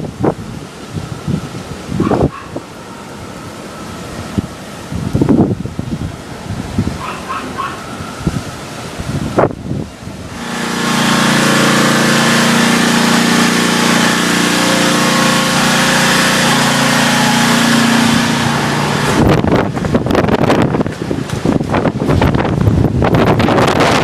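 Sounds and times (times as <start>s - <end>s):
storm wind gusting: 0.0s - 10.4s, 15.7s - 24.0s
loud steady mechanical hum: 0.0s - 24.0s.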